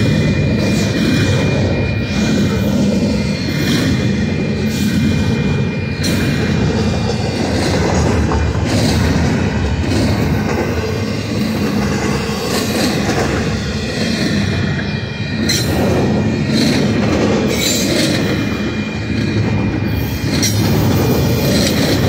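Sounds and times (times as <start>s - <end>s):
steel wheels rumbling on rail: 0.0s - 22.0s
wheels clacking over rail joints: 6.0s - 22.0s.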